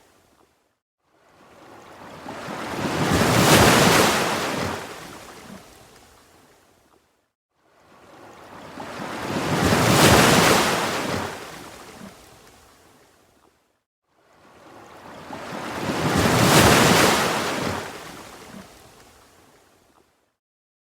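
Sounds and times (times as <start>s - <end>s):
ocean waves breaking: 1.3s - 5.7s, 7.7s - 12.5s, 14.4s - 19.1s.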